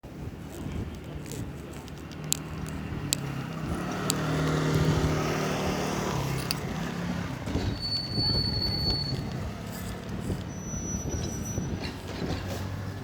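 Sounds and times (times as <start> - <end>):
sharp clicks: 0.4 - 10.6
vehicle engine passing by: 1.2 - 10.4.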